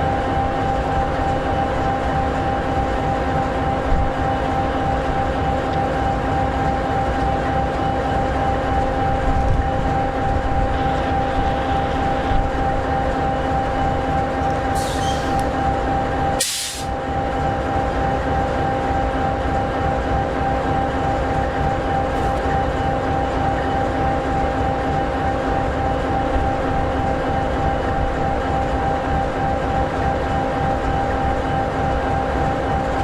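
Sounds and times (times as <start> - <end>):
short hiss: 16.4 - 16.9.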